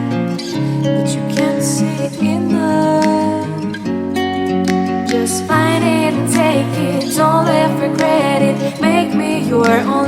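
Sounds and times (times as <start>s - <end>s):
acoustic guitar: 0.0s - 10.0s
person singing: 0.6s - 3.9s, 5.0s - 10.0s.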